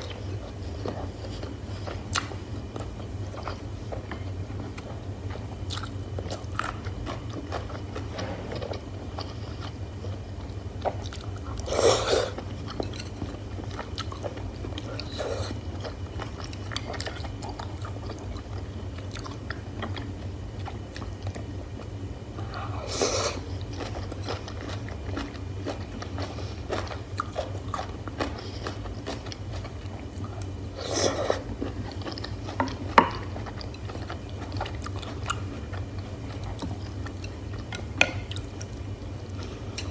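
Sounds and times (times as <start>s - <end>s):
close chewing and biting: 23.4s - 39.9s.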